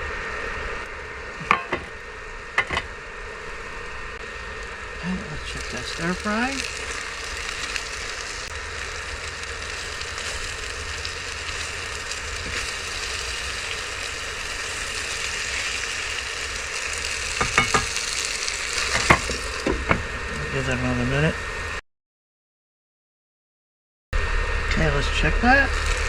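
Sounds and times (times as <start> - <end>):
food sizzling in a pan: 1.4 - 20.6, 25.5 - 26.0.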